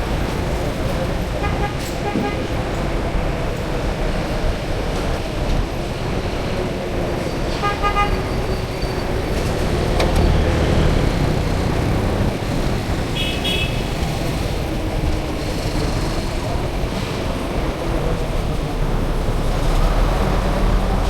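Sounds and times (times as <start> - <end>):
road traffic passing: 0.0 - 21.0
vehicle horn honking: 13.1 - 14.0.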